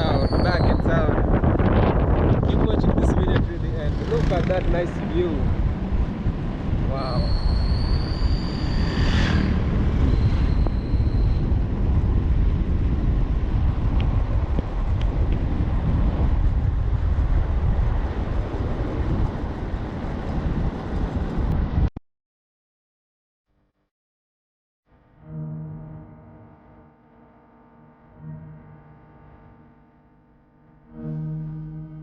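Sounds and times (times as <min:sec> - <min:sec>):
vehicle rumble on road: 0:01.3 - 0:21.9
thin high whistle: 0:07.0 - 0:11.5.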